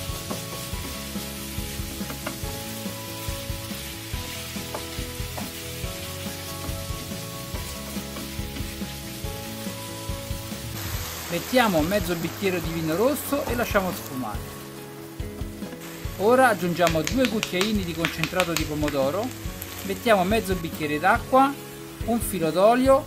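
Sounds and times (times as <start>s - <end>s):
spatula stirring and scraping: 0.0s - 10.4s
meat and peppers sizzling in oil: 0.0s - 23.0s
spatula clicking on pan: 16.8s - 19.1s.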